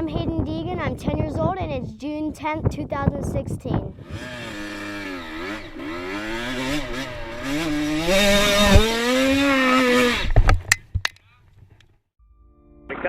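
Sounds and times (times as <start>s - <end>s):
dirt bike engine revving: 4.0s - 10.6s.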